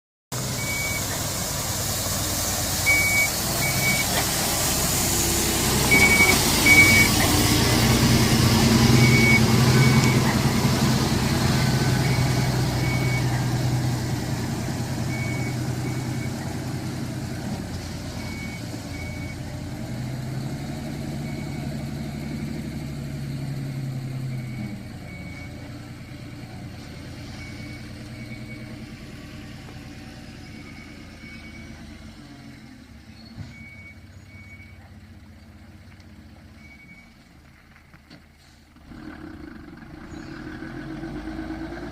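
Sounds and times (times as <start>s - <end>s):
diesel engine running: 0.3s - 41.9s
backup alarm beeping: 0.6s - 1.1s, 2.8s - 4.1s, 5.9s - 7.2s, 8.9s - 10.3s.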